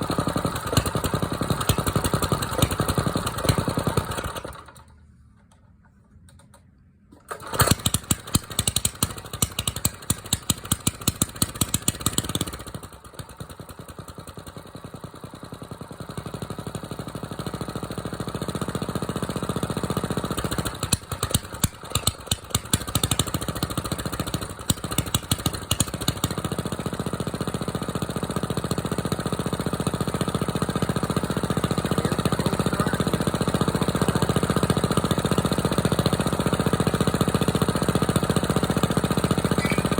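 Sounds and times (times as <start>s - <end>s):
small diesel engine running: 0.0s - 5.2s, 7.1s - 39.9s.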